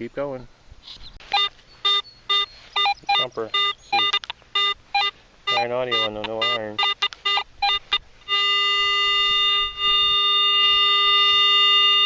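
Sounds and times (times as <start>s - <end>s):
metal detector beeps: 1.2s - 12.0s
metal detector steady tone: 1.2s - 12.0s.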